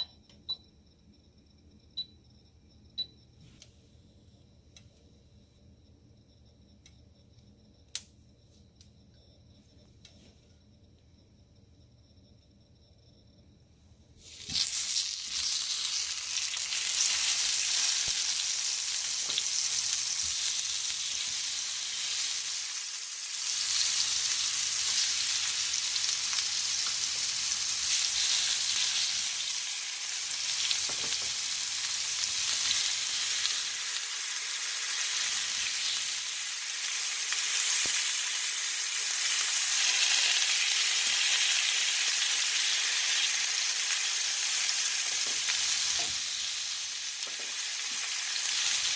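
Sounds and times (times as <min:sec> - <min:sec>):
tomatoes sizzling in a pan: 0:14.2 - 0:48.9.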